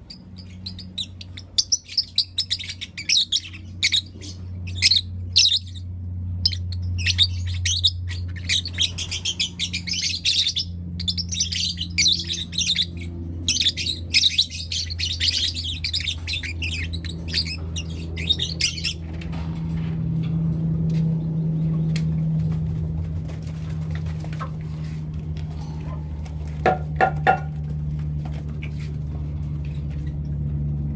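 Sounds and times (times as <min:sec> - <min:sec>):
steady low hum: 0:00.0 - 0:30.9
lovebirds chirping: 0:00.1 - 0:19.5.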